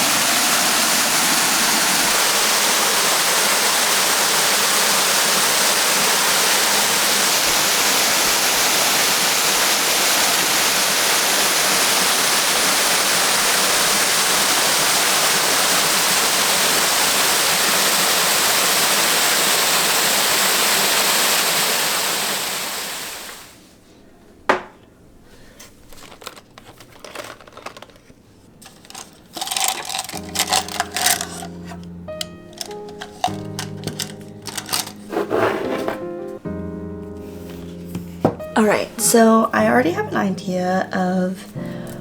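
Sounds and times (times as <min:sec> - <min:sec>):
waterfall rushing: 0:00.0 - 0:23.2
music: 0:28.9 - 0:42.0.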